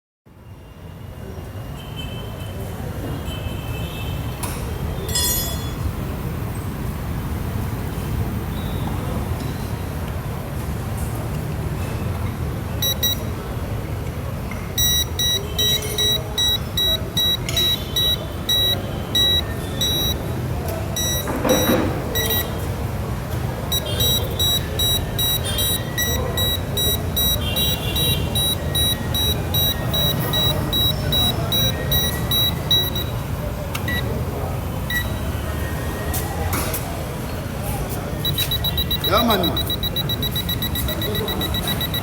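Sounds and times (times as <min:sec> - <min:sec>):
electronic detector beeping: 0:12.8 - 0:13.3, 0:14.8 - 0:20.2, 0:21.0 - 0:22.6, 0:23.7 - 0:33.2, 0:33.9 - 0:34.1, 0:34.9 - 0:35.2, 0:38.2 - 0:42.0.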